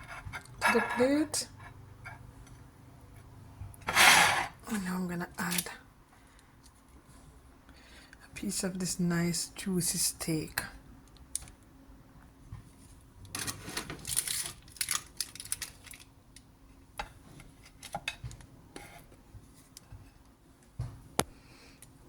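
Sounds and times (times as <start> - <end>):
utensils scraping a plate: 3.9 - 4.6.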